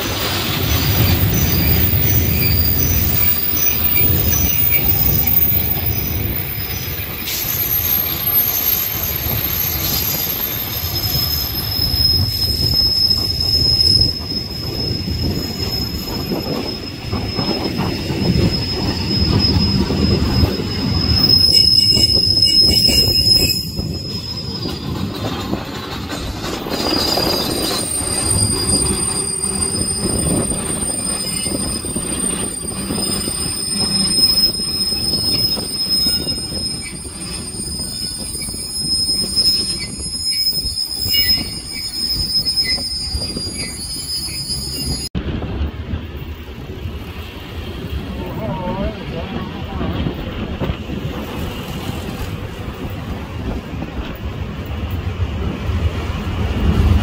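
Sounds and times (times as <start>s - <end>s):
thin high wheel squeal: 0.0s - 45.1s
higher wheel squeal: 0.0s - 45.2s
train wheels rumbling and clattering: 0.0s - 57.0s.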